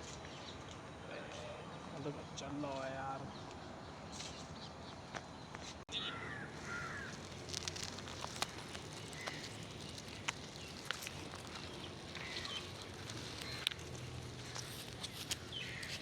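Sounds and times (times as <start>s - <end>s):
bird calling: 5.9s - 16.0s.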